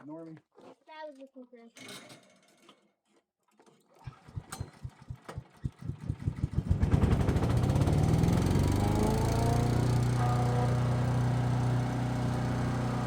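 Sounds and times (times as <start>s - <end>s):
small gas engine starting: 3.9s - 13.0s.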